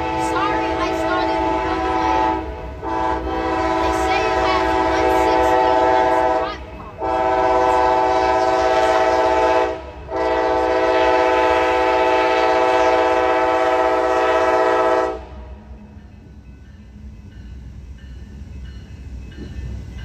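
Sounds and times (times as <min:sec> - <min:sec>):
locomotive air horn blowing: 0:00.0 - 0:15.6
passing train rumble: 0:00.0 - 0:20.0.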